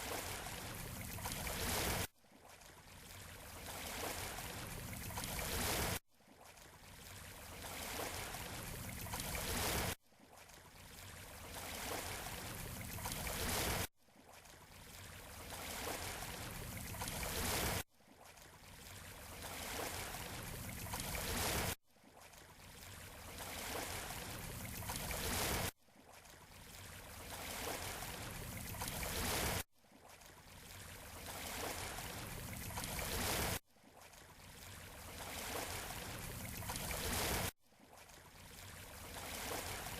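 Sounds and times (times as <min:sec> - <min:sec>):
seashore surf: 0:38.9 - 0:39.9.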